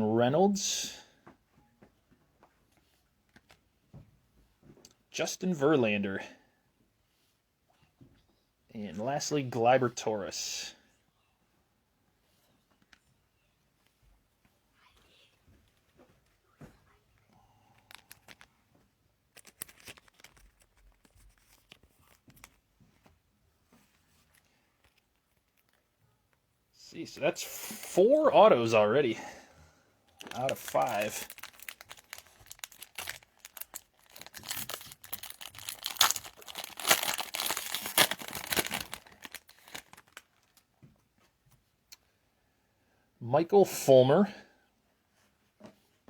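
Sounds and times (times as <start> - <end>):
trading cards and foil crinkling: 17.7 - 18.6, 19.3 - 22.7, 23.8 - 25.9, 30.2 - 40.7.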